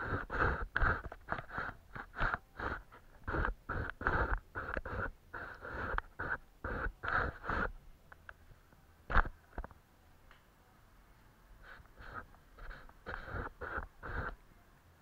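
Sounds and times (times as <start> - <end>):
paintbrush stroking paper: 0.0 - 7.7, 11.6 - 14.4.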